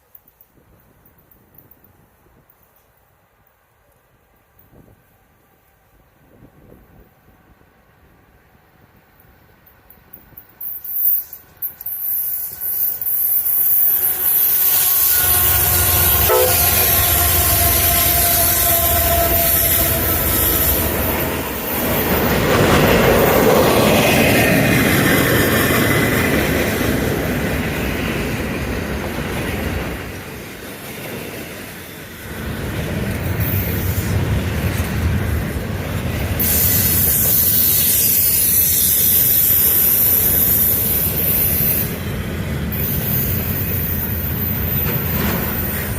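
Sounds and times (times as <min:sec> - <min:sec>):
train wheels rolling on rails: 0:00.0 - 0:45.9
diesel locomotive horn: 0:13.6 - 0:22.0.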